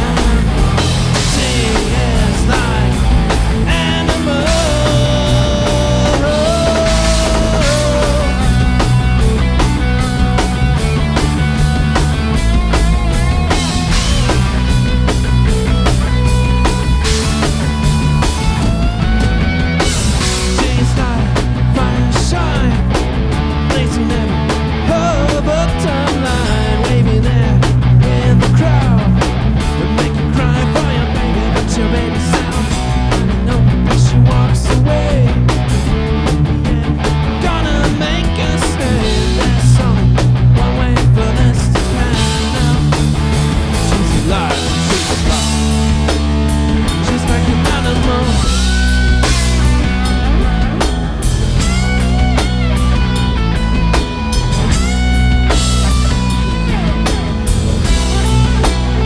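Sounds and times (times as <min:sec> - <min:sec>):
bending guitar notes: 0:00.0 - 0:20.8, 0:42.0 - 0:59.0
drum hits: 0:00.0 - 0:21.7, 0:41.5 - 0:59.0
rock band playing: 0:00.0 - 0:59.0.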